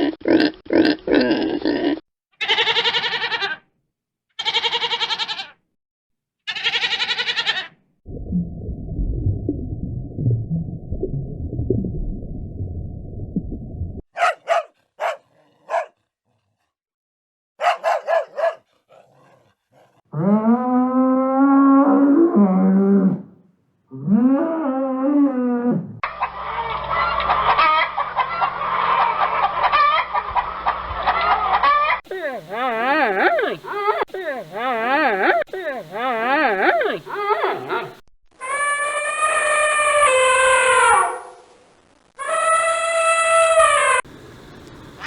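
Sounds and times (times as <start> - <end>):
drawn-out pitched animal call: 6.5 - 7.7, 31.3 - 41.2
low muffled rumble: 8.1 - 14.0
dog barking: 14.1 - 16.0, 17.6 - 20.0, 36.6 - 38.0, 40.9 - 41.4
chickens clucking: 26.0 - 34.2
steady low hum: 44.1 - 45.0.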